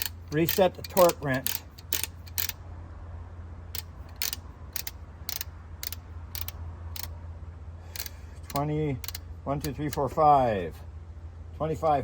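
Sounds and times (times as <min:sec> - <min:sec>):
torque wrench detent clicks: 0:00.0 - 0:02.6, 0:03.7 - 0:07.2, 0:07.9 - 0:10.2
steady low hum: 0:00.0 - 0:12.0.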